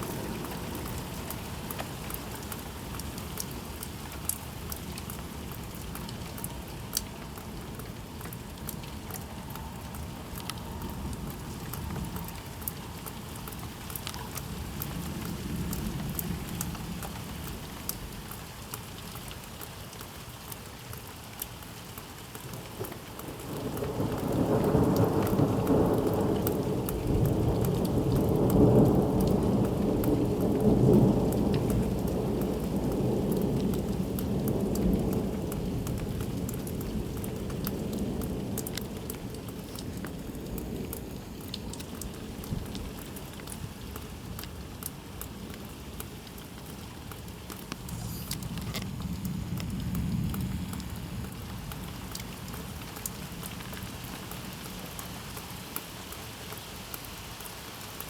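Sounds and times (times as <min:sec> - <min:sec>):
steady rain falling: 0:00.0 - 0:58.0
thunder rumbling: 0:23.2 - 0:43.4, 0:46.3 - 0:53.8.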